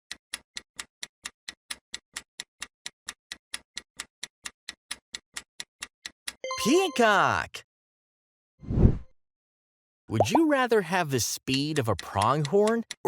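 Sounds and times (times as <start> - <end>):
clock ticking quickly: 11.5 - 13.0.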